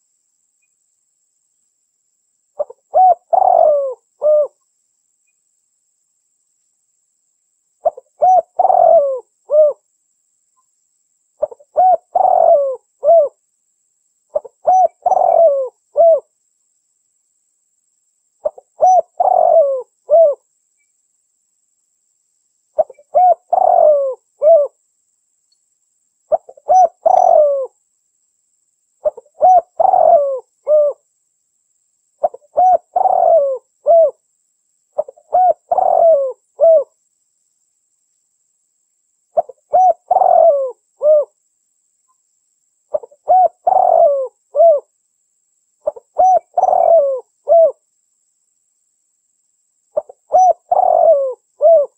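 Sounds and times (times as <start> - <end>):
dove cooing: 2.6 - 4.6, 7.8 - 9.8, 11.4 - 13.4, 14.3 - 16.3, 18.4 - 20.4, 22.8 - 24.8, 26.3 - 27.8, 29.0 - 31.0, 32.2 - 34.2, 35.0 - 36.9, 39.4 - 41.4, 42.9 - 44.9, 45.8 - 47.8, 50.0 - 51.9.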